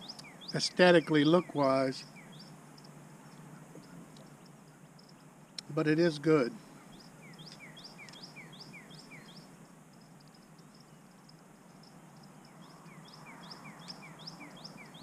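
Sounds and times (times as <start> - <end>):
outdoor background noise: 0.0 - 15.0
songbird calling short notes: 6.5 - 9.5, 11.9 - 15.0.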